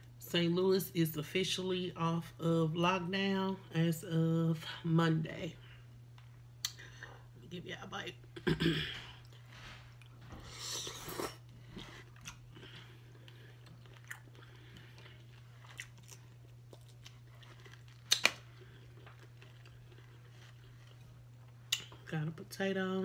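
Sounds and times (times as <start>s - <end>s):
soft wet chewing: 9.1s - 22.1s.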